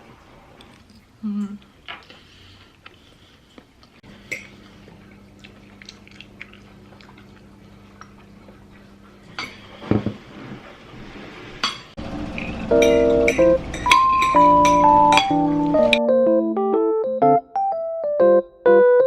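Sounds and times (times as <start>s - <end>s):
person chewing food: 0.6s - 9.0s.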